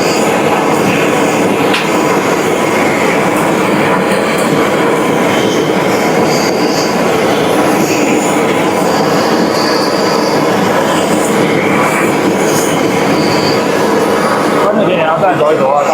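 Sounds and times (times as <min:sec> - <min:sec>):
high mechanical squeals: 0:00.0 - 0:15.9
machinery running loudly: 0:00.0 - 0:15.9.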